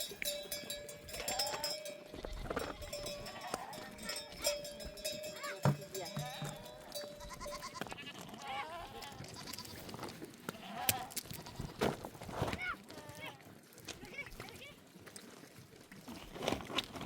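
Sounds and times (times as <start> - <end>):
livestock bells clinking: 0.0 - 8.2
sheep bleating: 0.0 - 9.8, 10.5 - 11.8.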